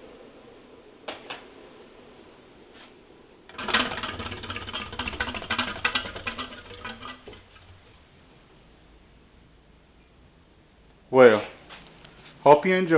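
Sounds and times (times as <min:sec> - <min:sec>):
ceiling fan motor humming: 0:00.0 - 0:12.9
fan clattering rattle: 0:03.5 - 0:08.5.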